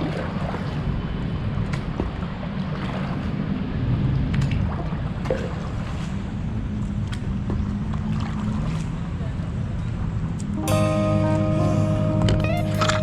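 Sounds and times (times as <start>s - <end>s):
water splashing around paddle: 0.0s - 9.8s, 12.2s - 13.0s
steady low rumble: 0.0s - 13.0s.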